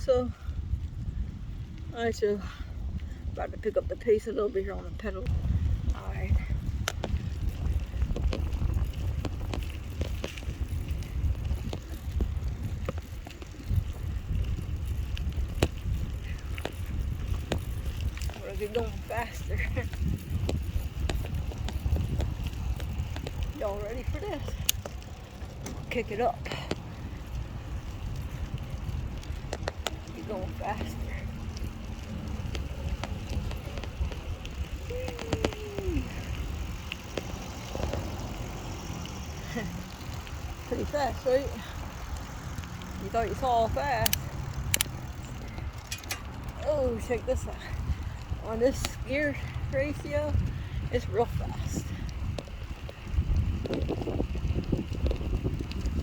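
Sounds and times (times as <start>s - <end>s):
bicycle clicks and ticks: 0.0s - 3.7s, 4.6s - 56.0s
wind and tyres rumbling: 0.0s - 56.0s
sharp clicks: 44.0s - 45.1s.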